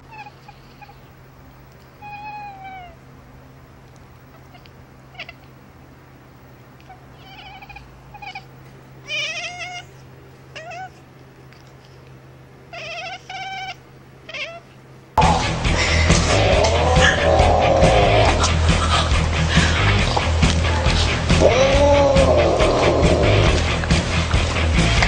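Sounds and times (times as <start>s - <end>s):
cat meowing: 0.0s - 1.1s, 2.0s - 3.0s, 4.3s - 5.6s, 6.8s - 11.1s, 12.7s - 14.8s, 16.3s - 18.4s, 21.3s - 23.6s
low hum: 15.2s - 25.0s.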